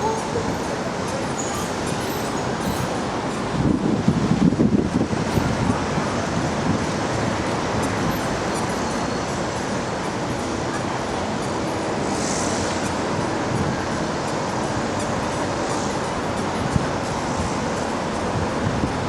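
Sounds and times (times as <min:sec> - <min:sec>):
maglev train rushing noise: 0:00.0 - 0:19.0
brief hiss: 0:12.1 - 0:12.9.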